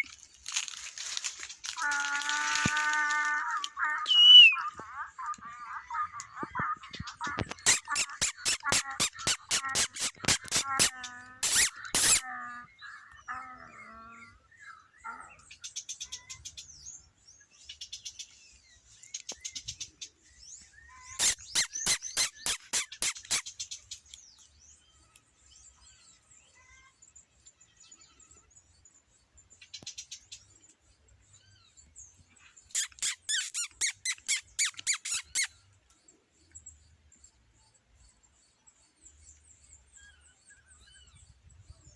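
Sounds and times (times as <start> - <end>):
bird calls and chirps: 1.8 - 17.0, 20.8 - 24.5, 32.7 - 35.6
rapid sharp clicks: 7.6 - 12.2, 21.2 - 23.4.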